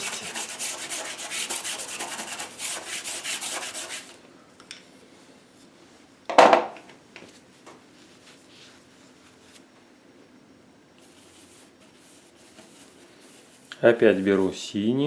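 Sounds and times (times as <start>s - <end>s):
bristle brush scrubbing: 0.0s - 4.2s.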